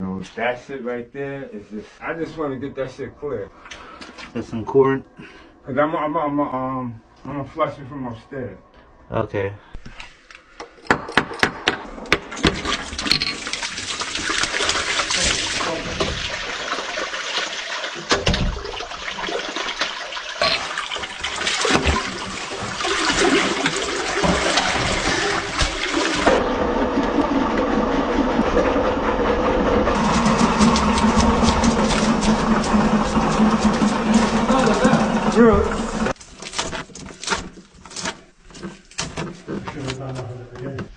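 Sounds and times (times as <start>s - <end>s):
water rushing down drain: 11.9s - 36.2s
motor hum: 24.2s - 36.2s.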